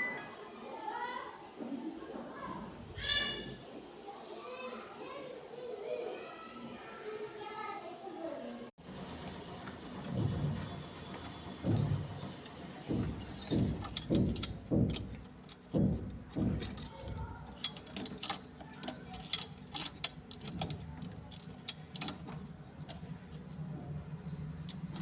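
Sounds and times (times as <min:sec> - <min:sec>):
washing machine hum: 0:08.8 - 0:25.0
light clicks and rattles: 0:11.5 - 0:23.7.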